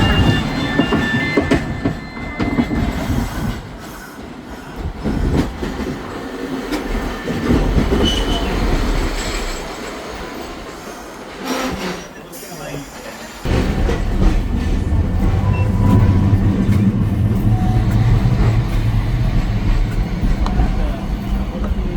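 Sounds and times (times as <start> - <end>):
high-pitched wheel squeals: 0.0 - 3.5, 15.2 - 18.9
tram wheels rumbling on rails: 0.0 - 21.9.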